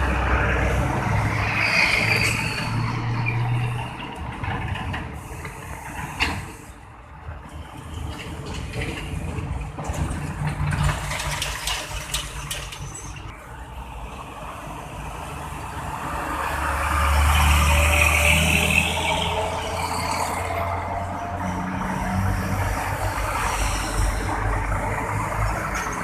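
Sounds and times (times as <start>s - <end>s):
heavy trucks passing: 0.0s - 26.0s
engine passing: 15.3s - 26.0s.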